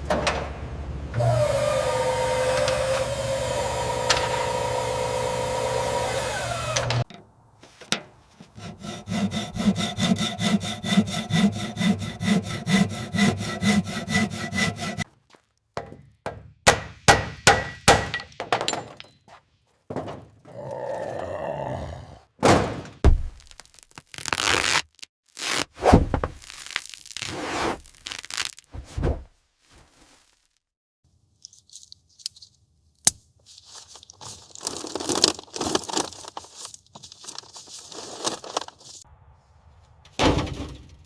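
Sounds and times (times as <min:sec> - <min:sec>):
pitched power tool running: 0:01.2 - 0:07.0
sawing or scraping metal strokes: 0:08.3 - 0:15.1.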